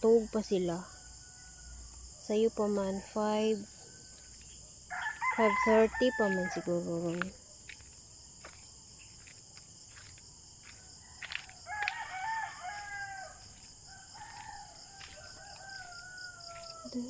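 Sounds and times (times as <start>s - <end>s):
rooster crowing: 0.9s - 1.9s, 3.8s - 6.8s, 10.9s - 17.0s
light footsteps: 4.0s - 17.0s.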